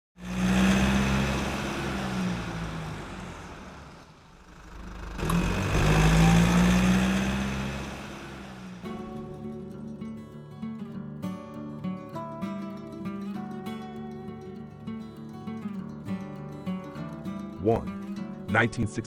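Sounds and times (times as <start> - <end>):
car engine drone: 0.2 - 9.5.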